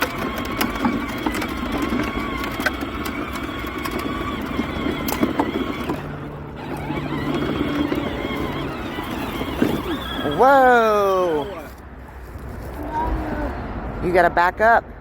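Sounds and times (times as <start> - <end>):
clicks and knocks from wheels: 0.0 - 10.3
toy tractor electric motor whirring: 0.0 - 11.8.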